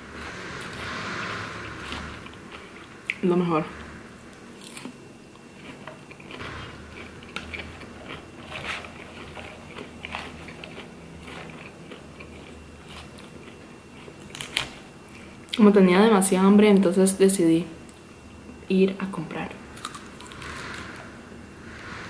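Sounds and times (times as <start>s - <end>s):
chewing crisp salad: 0.6s - 3.2s, 4.3s - 15.7s, 19.8s - 20.8s.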